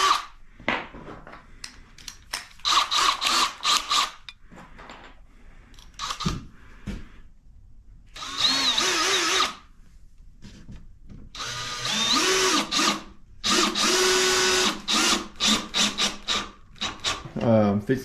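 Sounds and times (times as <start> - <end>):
power drill running: 0.0 - 0.3, 2.6 - 4.2, 8.2 - 9.6, 11.4 - 17.2.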